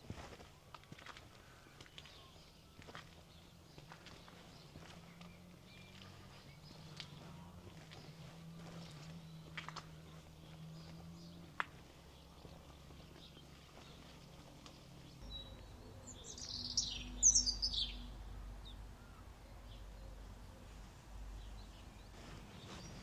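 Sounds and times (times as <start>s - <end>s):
faint outdoor background: 0.0s - 23.0s
songbird chattering: 15.2s - 20.7s.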